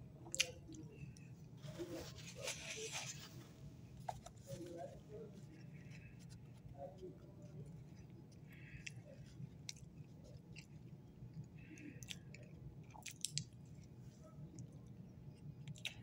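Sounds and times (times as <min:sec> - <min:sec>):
person chewing cookie: 0:05.6 - 0:14.0, 0:14.6 - 0:16.0.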